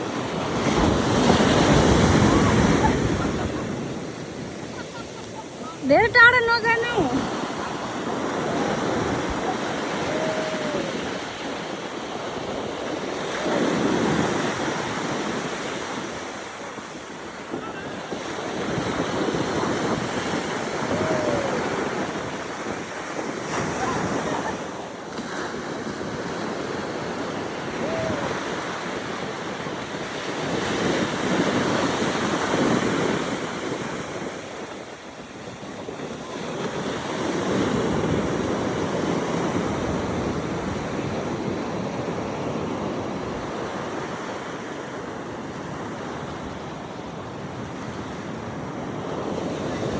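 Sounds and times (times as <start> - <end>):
wind buffeting microphone: 0.0 - 25.1
ocean surf washing onto beach: 0.0 - 49.9.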